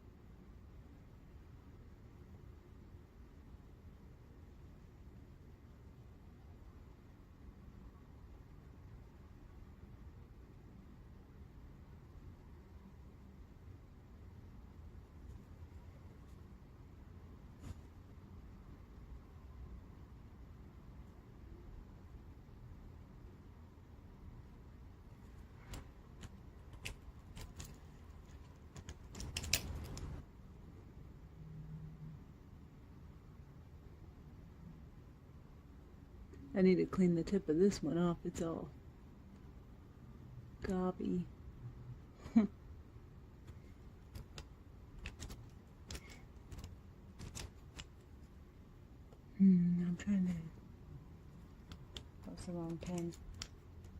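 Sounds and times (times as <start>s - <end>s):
plastic pens clicking and clattering: 25.6s - 30.2s, 44.0s - 48.3s, 51.6s - 53.9s.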